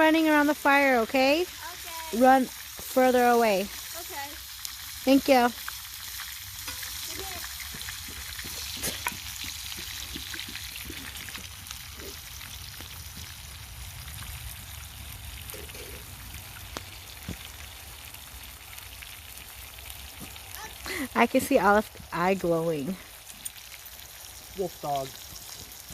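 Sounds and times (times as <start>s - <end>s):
burgers sizzling in a pan: 0.0s - 25.9s
pops and crackles: 5.5s - 13.5s, 15.4s - 17.8s.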